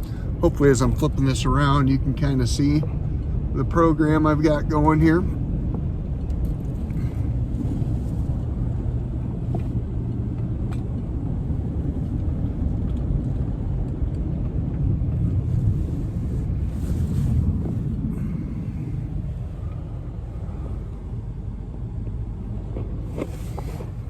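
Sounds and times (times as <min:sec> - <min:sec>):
vehicle engine running: 0:00.0 - 0:24.0
wind noise on microphone: 0:05.3 - 0:24.0.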